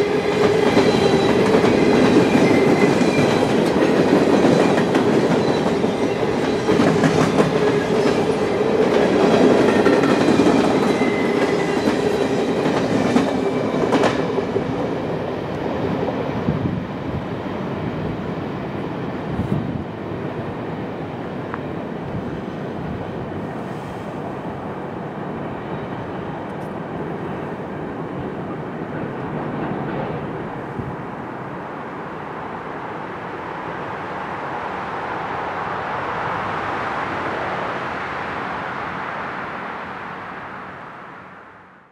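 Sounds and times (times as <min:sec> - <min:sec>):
high wheel squeal: 0:00.0 - 0:03.6.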